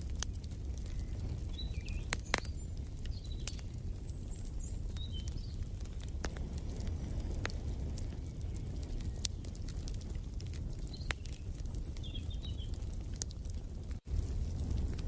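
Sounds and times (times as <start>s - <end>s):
wood fire crackling: 0.0s - 15.0s
bird chirps: 1.0s - 5.6s, 10.9s - 12.8s.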